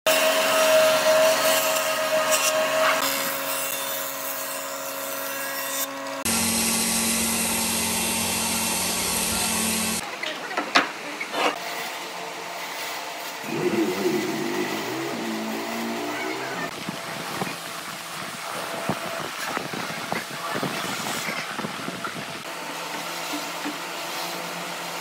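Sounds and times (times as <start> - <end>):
power tools whining: 5.8 - 10.0, 13.3 - 16.9.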